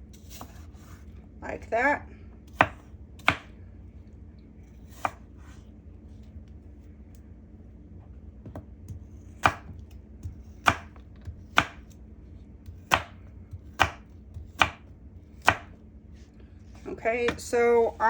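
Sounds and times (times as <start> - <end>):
knife chopping on cutting board: 2.5 - 3.5, 4.9 - 5.5, 8.5 - 12.0, 12.6 - 14.8, 15.4 - 15.8.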